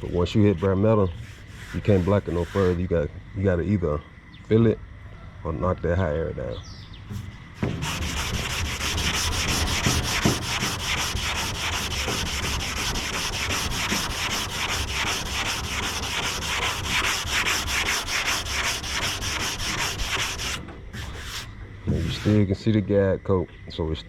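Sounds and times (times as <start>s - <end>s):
sandpaper rubbing back and forth: 0.0s - 2.9s, 7.6s - 22.4s.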